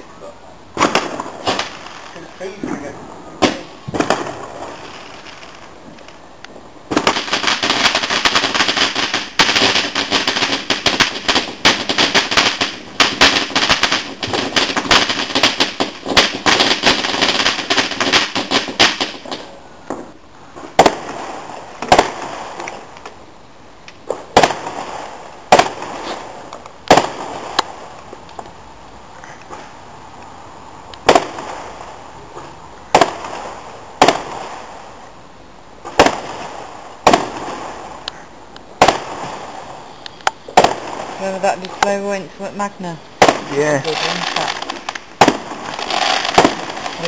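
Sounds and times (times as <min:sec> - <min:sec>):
fireworks crackling: 0:00.0 - 0:23.2, 0:23.8 - 0:28.7, 0:29.4 - 0:35.2, 0:35.8 - 0:47.0
sharp firework bangs: 0:00.8 - 0:05.7, 0:06.9 - 0:22.8, 0:24.0 - 0:27.8, 0:31.0 - 0:31.8, 0:32.9 - 0:34.7, 0:35.8 - 0:38.0, 0:38.8 - 0:39.7, 0:40.5 - 0:42.2, 0:43.2 - 0:47.0.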